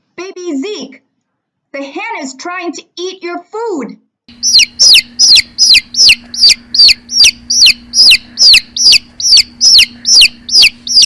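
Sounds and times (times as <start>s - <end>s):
hen clucking: 4.3s - 11.0s
steady low hum: 4.3s - 11.0s.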